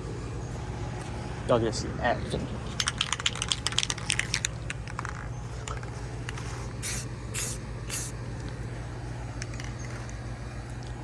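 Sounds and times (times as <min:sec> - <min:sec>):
low hum: 0:00.0 - 0:11.0
spray can hissing: 0:06.7 - 0:08.1.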